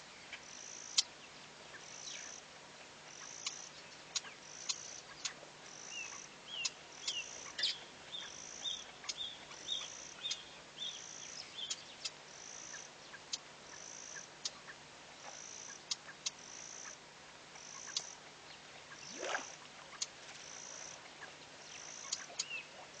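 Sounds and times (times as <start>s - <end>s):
bird chirping: 0.0s - 2.4s, 3.0s - 17.0s, 17.6s - 23.0s.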